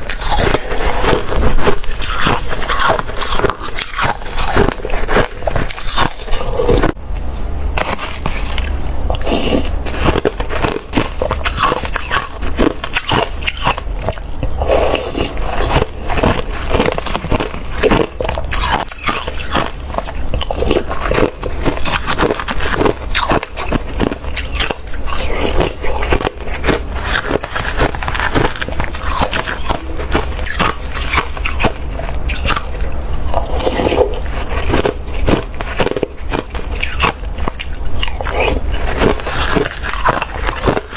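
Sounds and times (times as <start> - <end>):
slushy ice being chewed: 0.0 - 40.9.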